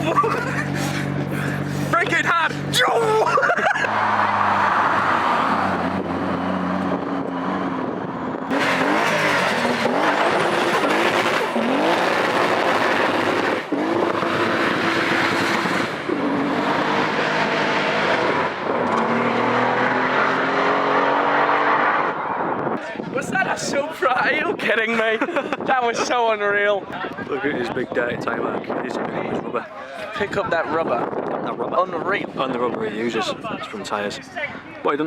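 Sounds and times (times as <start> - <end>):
car engine revving hard: 3.7 - 22.6.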